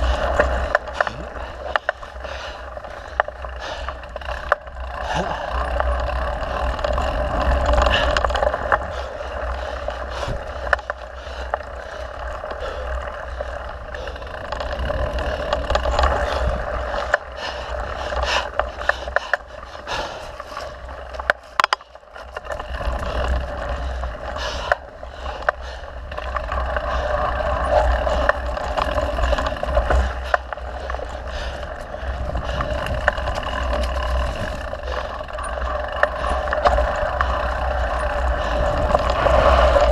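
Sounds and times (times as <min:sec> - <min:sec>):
bike rattling and knocking: 0:00.0 - 0:39.9
bike tyres rolling on dirt: 0:00.0 - 0:39.9
wind noise: 0:22.6 - 0:39.9.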